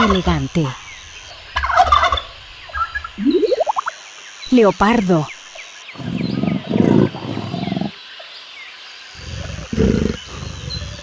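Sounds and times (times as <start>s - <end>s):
leopard grunting: 0.0s - 3.2s, 6.0s - 8.4s, 9.1s - 11.0s
faint bird chirps: 0.0s - 11.0s.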